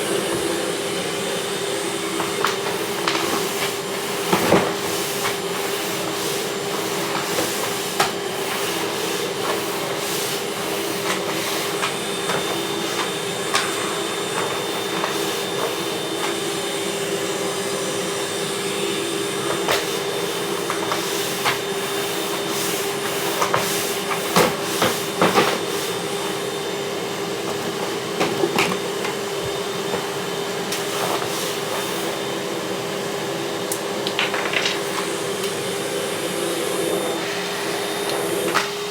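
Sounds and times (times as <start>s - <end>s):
vacuum cleaner humming: 0.0s - 38.9s.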